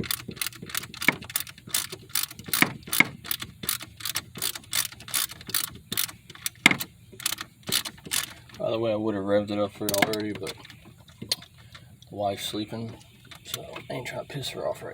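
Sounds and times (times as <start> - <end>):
ratchet wrench clicking: 0.0 - 8.6.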